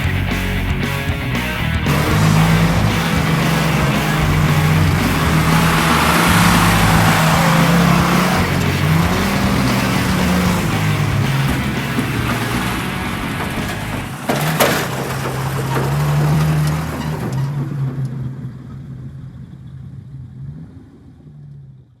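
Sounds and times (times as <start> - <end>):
car engine running: 0.0 - 22.0
sharp clunk: 1.9 - 17.9.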